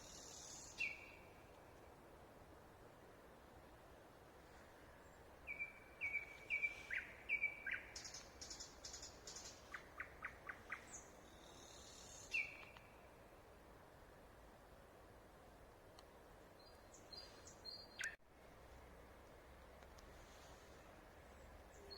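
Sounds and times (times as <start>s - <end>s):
songbird singing: 0.0s - 1.8s, 5.0s - 13.2s, 16.4s - 18.2s, 21.2s - 21.9s
soft background hiss: 0.0s - 21.9s.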